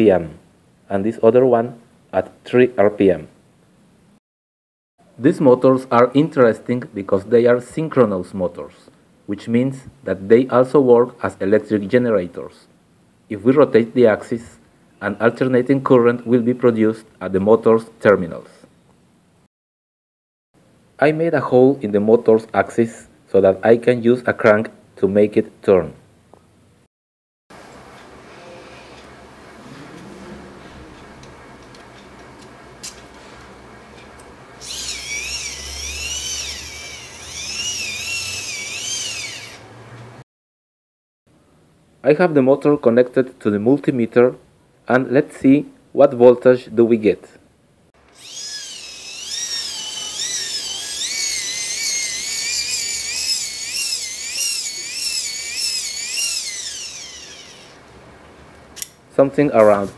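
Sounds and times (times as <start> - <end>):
motor gears whining: 34.6 - 40.1, 48.1 - 57.8.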